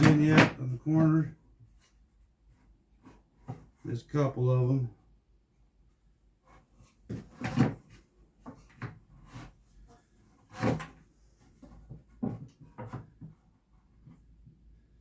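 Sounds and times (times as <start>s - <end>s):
wooden parts and tools clattering: 0.0s - 1.2s.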